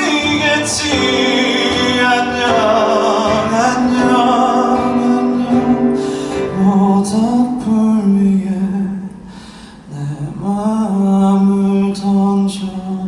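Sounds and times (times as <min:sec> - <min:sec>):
slow instrumental accompaniment: 0:00.0 - 0:08.0.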